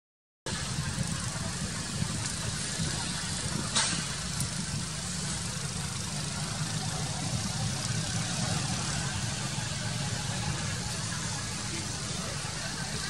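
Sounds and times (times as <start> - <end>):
low engine hum: 0.5 - 13.0.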